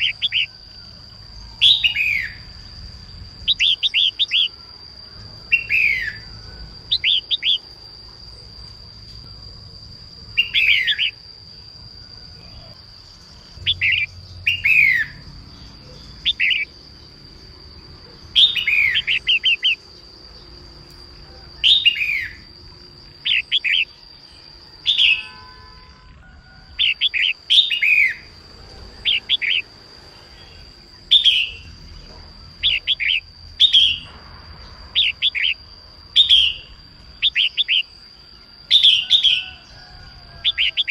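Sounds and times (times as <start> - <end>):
bird chirps: 0.0 - 2.8, 3.4 - 4.6, 5.4 - 7.7, 10.3 - 11.2, 12.4 - 22.5, 23.2 - 25.6, 26.8 - 40.9.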